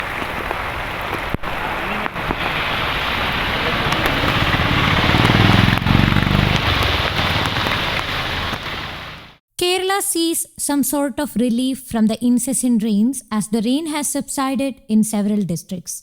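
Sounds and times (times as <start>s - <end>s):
rain and running water: 0.0s - 9.4s
vehicle engine: 0.0s - 9.4s.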